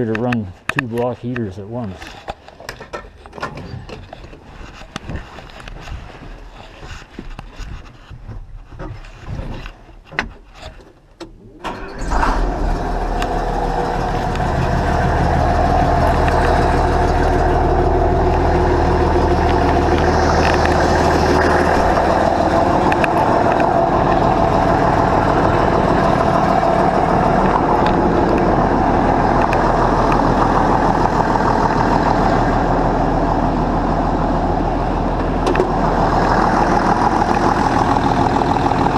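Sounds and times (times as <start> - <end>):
old car engine starting and idling: 11.0 - 38.9.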